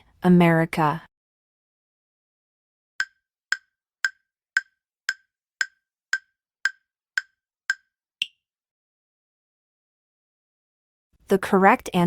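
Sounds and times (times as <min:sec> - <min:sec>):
countdown timer wooden ticks: 0:03.0 - 0:08.4.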